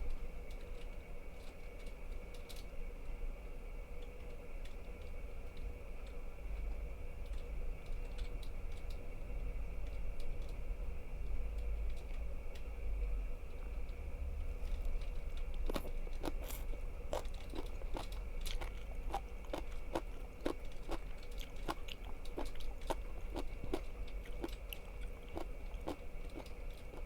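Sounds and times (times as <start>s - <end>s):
crunchy food being chewed: 13.5s - 27.0s.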